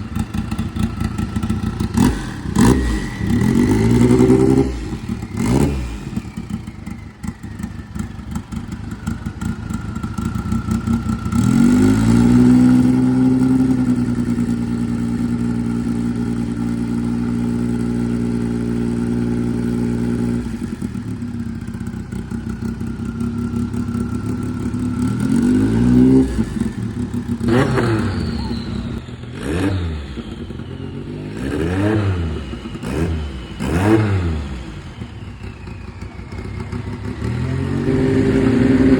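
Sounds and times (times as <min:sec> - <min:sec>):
vehicle engine revving: 0:00.0 - 0:38.9
short throttle blips: 0:25.0 - 0:35.4.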